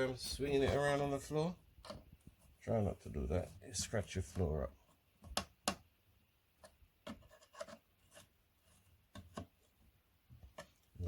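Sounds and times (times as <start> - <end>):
light taps and scrapes on wood: 6.6 - 9.8.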